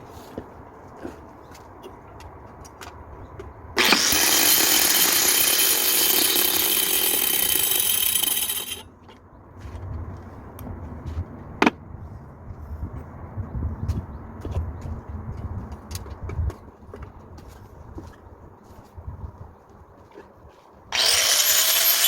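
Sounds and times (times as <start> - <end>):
power tool whining: 3.8 - 8.8, 20.9 - 22.0.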